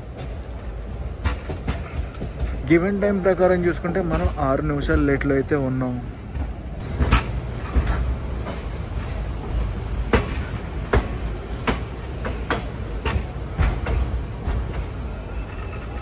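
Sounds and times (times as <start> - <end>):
sharp knocks of train: 0.0 - 3.0, 4.0 - 5.3, 6.3 - 15.1
train low rumble: 0.0 - 16.0.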